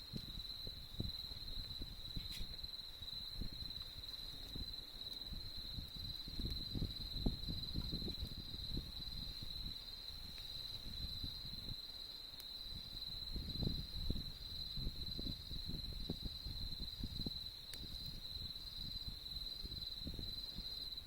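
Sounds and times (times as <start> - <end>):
campfire crackling: 0.0 - 21.0
campfire popping: 0.0 - 21.0
insects trilling: 0.0 - 21.0.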